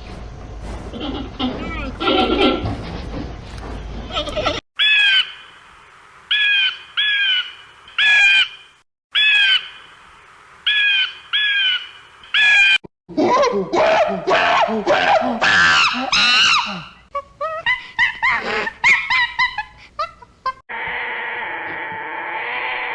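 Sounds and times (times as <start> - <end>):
bird harsh calls: 4.8 - 5.6, 6.3 - 9.9, 10.7 - 12.8.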